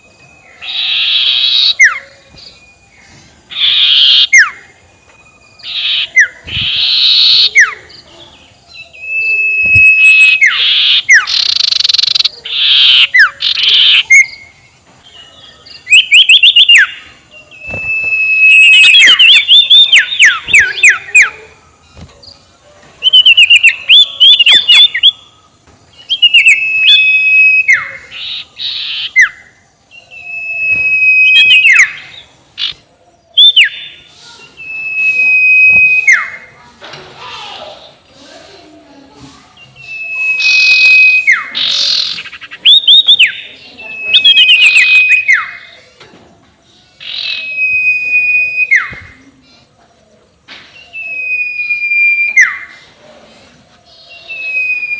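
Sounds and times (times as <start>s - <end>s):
owl screeching and whistling: 0.6s - 2.2s, 3.5s - 4.7s, 5.6s - 7.8s, 8.9s - 14.4s, 15.8s - 21.4s, 23.0s - 25.2s, 26.1s - 36.6s, 39.6s - 45.8s, 47.0s - 49.1s, 50.8s - 52.9s, 54.0s - 54.9s.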